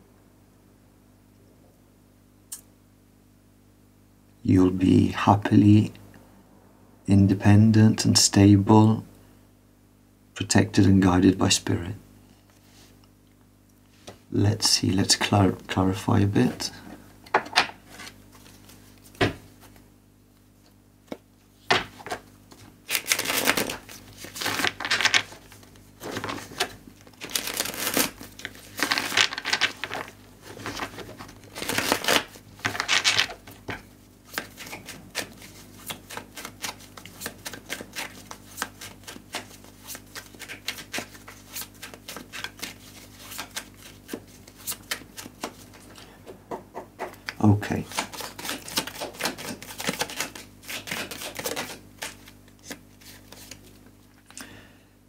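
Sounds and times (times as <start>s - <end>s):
cards riffling: 21.7s - 45.9s, 47.9s - 53.8s.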